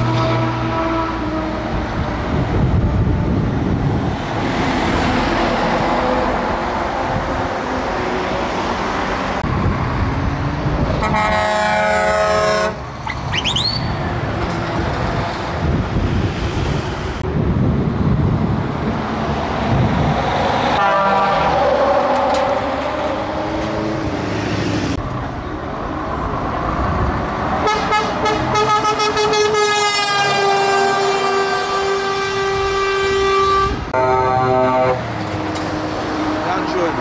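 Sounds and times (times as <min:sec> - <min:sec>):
truck horn: 0:00.0 - 0:01.8, 0:10.9 - 0:14.0, 0:20.7 - 0:22.6, 0:27.6 - 0:35.1
truck engines and traffic rumbling: 0:00.0 - 0:37.0.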